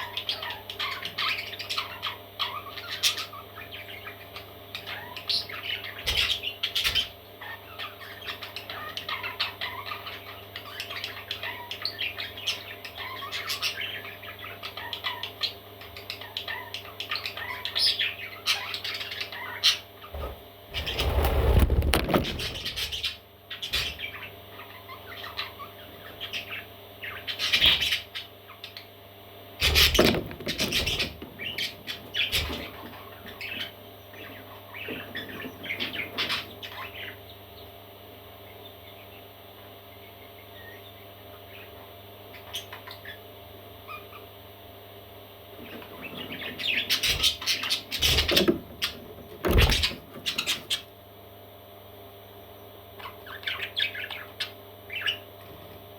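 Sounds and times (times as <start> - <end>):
parrot chicks chirping and squawking: 0.0 - 55.9
bumps and rustles: 20.2 - 23.0, 49.3 - 50.4.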